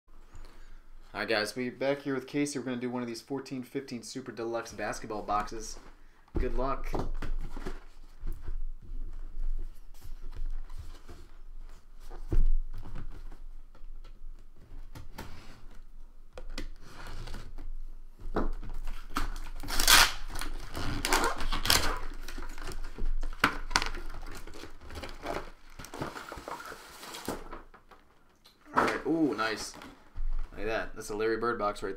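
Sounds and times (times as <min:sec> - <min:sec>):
packaging rustling: 0:18.6 - 0:28.4
plastic wrapping tearing and crinkling: 0:18.7 - 0:28.3.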